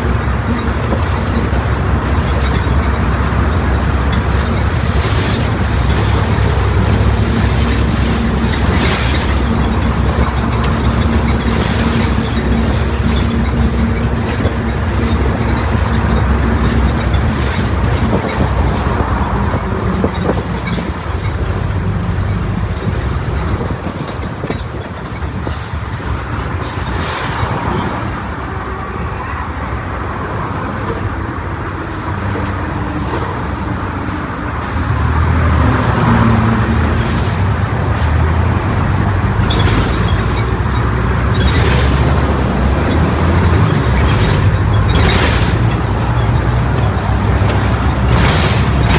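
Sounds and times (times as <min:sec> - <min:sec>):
knocks and rattles: 0:00.0 - 0:28.1, 0:39.3 - 0:48.9
bus engine drone: 0:00.0 - 0:48.9.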